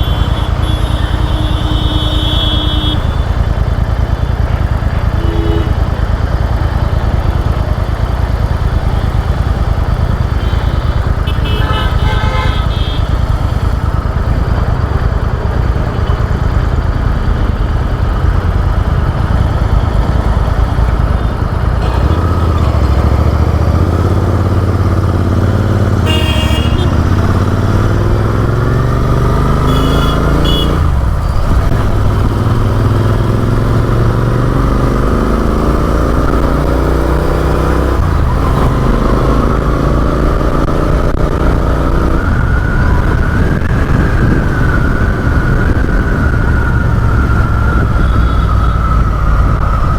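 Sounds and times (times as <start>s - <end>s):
vehicle horn toots: 0.0s - 3.4s, 5.0s - 6.0s, 10.3s - 13.3s, 21.2s - 24.8s, 25.6s - 28.0s, 29.3s - 31.0s, 48.0s - 48.9s
motorcycle engine accelerating: 0.0s - 49.9s
traffic: 0.0s - 49.9s
wind rumble: 30.8s - 37.2s, 37.9s - 49.9s.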